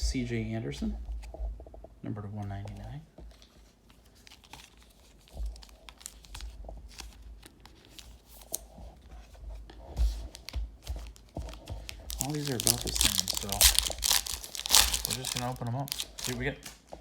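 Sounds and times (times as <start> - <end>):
cards rustling and clicking: 2.5 - 17.0
foil wrappers crinkling and tearing: 3.3 - 8.7, 10.1 - 17.0.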